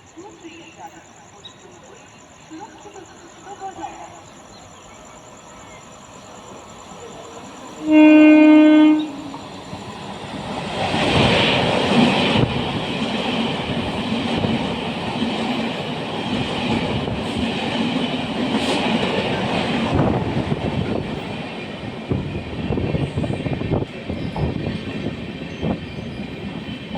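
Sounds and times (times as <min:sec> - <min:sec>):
passing train rumble: 0:00.0 - 0:26.9
train horn blast: 0:07.8 - 0:09.4.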